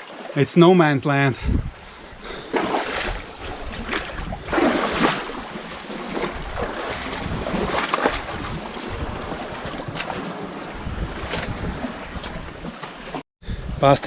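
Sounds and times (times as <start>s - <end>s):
wind buffeting microphone: 1.4s - 12.7s
sea water sloshing among rocks: 2.4s - 13.2s.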